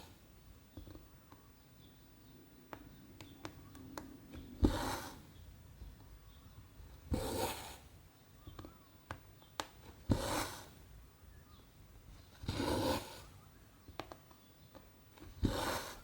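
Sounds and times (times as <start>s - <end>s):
thread rasping through canvas: 7.1s - 7.9s, 15.2s - 16.0s.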